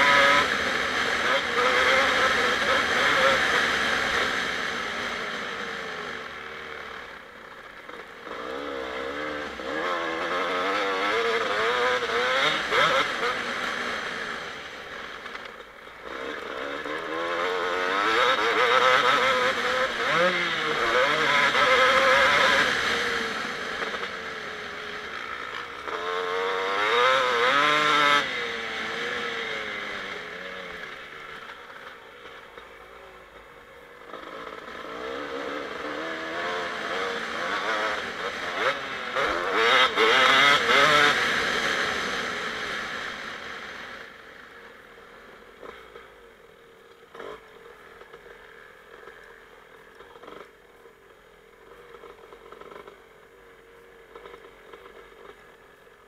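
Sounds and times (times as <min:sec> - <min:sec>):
motocross engine revving: 0:00.0 - 0:07.1, 0:08.2 - 0:15.2, 0:16.0 - 0:31.4, 0:34.1 - 0:44.2.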